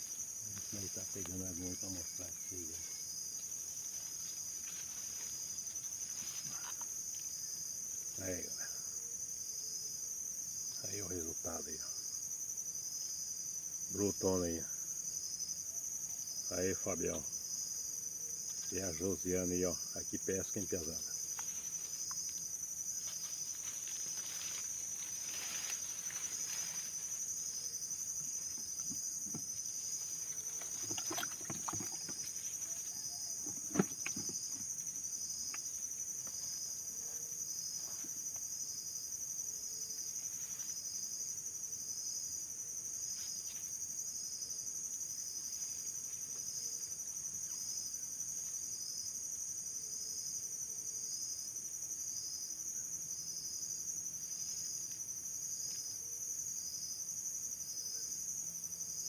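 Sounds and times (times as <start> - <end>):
faint knocks and rustles: 28.2 - 34.8.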